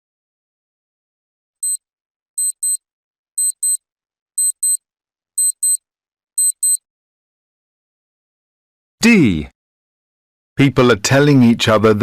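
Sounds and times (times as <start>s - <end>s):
electronic alarm beeping: 2.4s - 2.8s, 3.4s - 3.8s, 4.4s - 4.8s, 5.4s - 5.8s, 6.4s - 6.8s.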